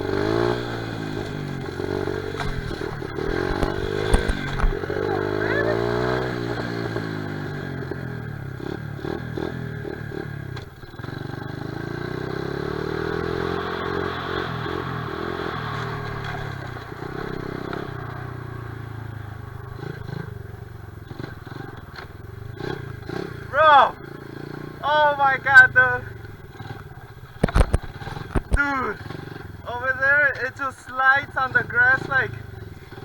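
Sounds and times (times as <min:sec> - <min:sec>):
small motorcycle engine revving: 0:00.0 - 0:30.3, 0:31.3 - 0:33.0
scattered clicks and knocks: 0:02.2 - 0:05.0, 0:26.6 - 0:29.1.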